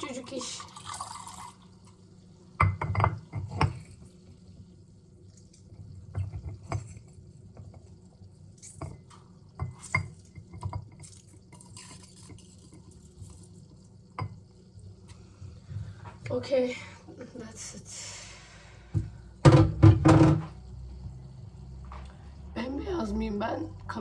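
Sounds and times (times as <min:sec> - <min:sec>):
liquid dripping: 0:00.0 - 0:16.0
glassware clinking: 0:02.6 - 0:03.7, 0:09.6 - 0:12.4, 0:14.2 - 0:14.4.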